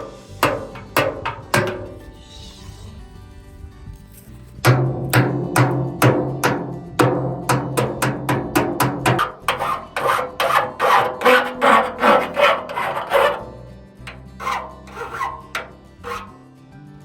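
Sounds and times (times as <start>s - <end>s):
hand saw cutting wood: 0.0s - 2.0s, 7.5s - 16.4s.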